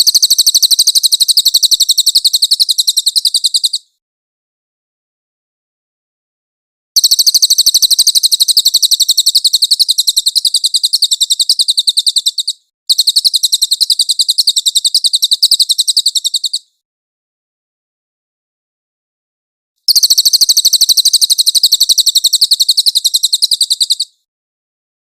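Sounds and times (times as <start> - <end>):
bird singing fast trills: 0.0 - 3.9, 7.0 - 16.7, 19.9 - 24.2.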